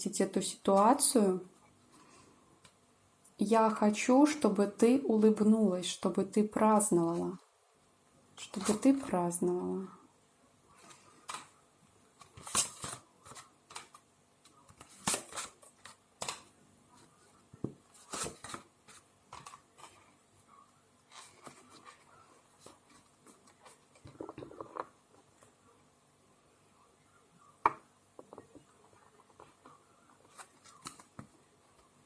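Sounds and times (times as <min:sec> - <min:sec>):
cards rustling and tapping: 0:10.8 - 0:11.6, 0:12.2 - 0:20.2, 0:28.2 - 0:32.0.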